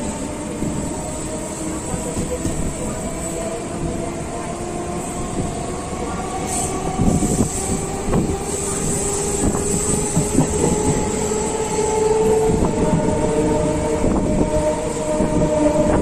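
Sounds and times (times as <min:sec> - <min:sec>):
train wheels knocking over rail joints: 0:09.0 - 0:11.5.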